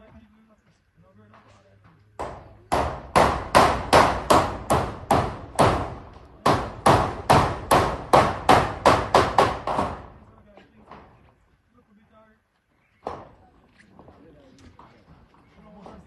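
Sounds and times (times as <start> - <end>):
hammer nailing metal roofing: 2.2 - 11.3.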